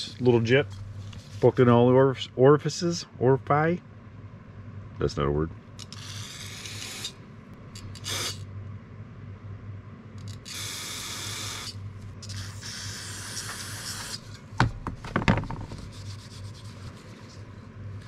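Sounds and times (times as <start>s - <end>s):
steady low hum: 0.0s - 18.0s
sharp knocks of handled parts: 14.6s - 15.8s.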